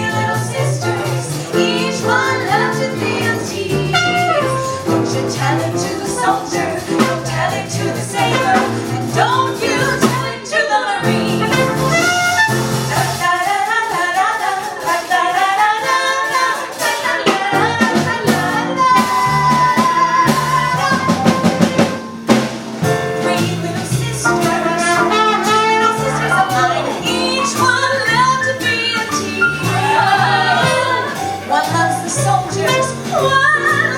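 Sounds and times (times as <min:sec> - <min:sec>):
drum kit: 0:00.0 - 0:33.9
saxophone: 0:03.1 - 0:07.6, 0:10.2 - 0:13.1, 0:23.3 - 0:33.9
brass playing: 0:03.6 - 0:07.6, 0:10.6 - 0:13.0, 0:23.0 - 0:33.2
person singing: 0:23.2 - 0:33.9.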